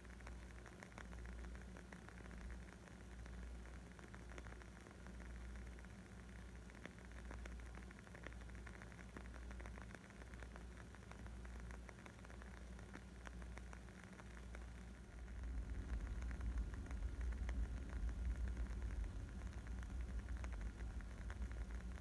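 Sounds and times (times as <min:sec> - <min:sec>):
wood fire crackling: 0:05.8 - 0:22.0.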